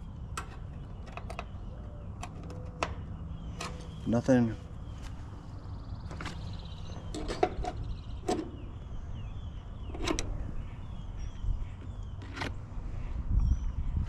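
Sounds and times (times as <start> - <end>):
wind rumble on microphone: 4.8 - 14.0.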